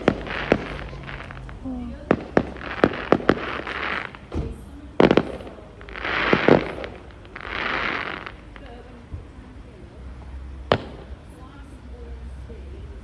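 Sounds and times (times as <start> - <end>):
fireworks bangs and pops: 0.0 - 9.5, 10.7 - 11.3
fireworks hissing crackle: 0.0 - 11.6.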